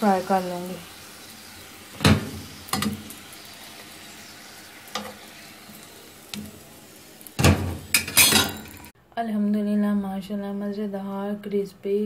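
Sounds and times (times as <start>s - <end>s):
food sizzling in oil: 0.0s - 9.0s.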